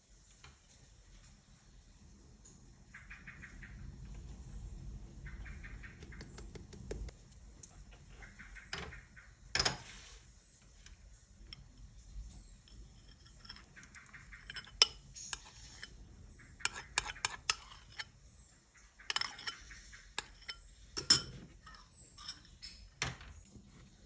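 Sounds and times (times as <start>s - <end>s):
dishes clinking: 8.7s - 10.1s, 12.7s - 16.0s, 19.1s - 22.9s
utensils scraping: 12.7s - 18.2s, 19.1s - 22.9s.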